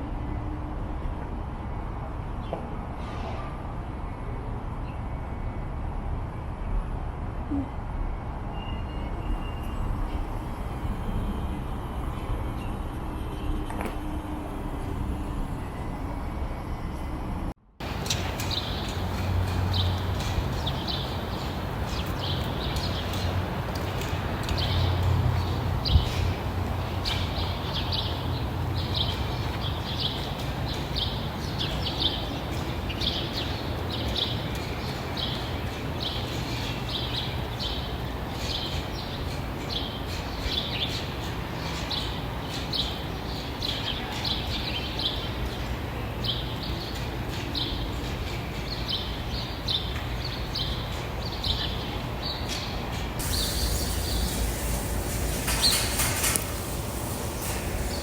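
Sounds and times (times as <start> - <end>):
small birds chirping: 17.8 - 58.0
steady hiss: 53.2 - 58.0.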